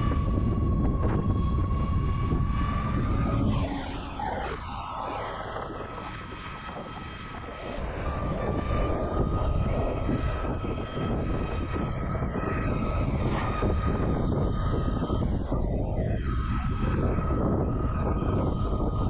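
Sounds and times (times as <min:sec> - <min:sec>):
electric motor high whine: 0:00.0 - 0:19.0
road noise: 0:00.0 - 0:19.0
wind rushing on microphone: 0:00.0 - 0:19.0.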